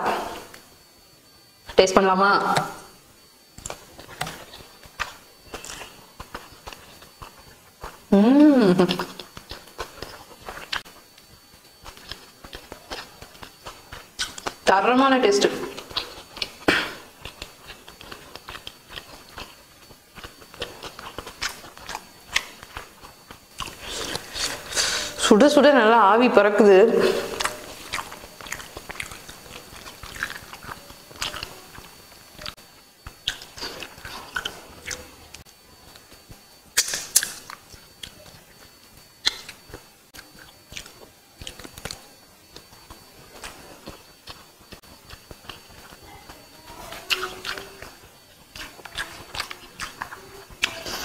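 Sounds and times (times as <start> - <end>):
person chewing with wet mouth clicks: 11.8 - 14.6, 15.8 - 24.7, 27.3 - 36.1, 36.8 - 46.0, 48.5 - 51.0
wet mouth clicks: 36.8 - 38.2, 39.2 - 42.0.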